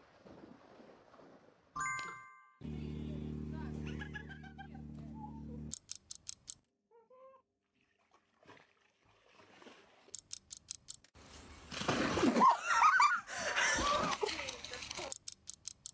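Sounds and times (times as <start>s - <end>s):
high clicks: 5.6s - 6.7s, 10.1s - 11.1s, 14.9s - 15.9s.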